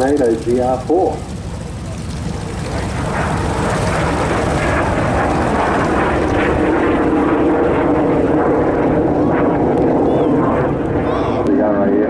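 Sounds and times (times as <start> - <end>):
propeller plane flying past: 0.0 - 12.0.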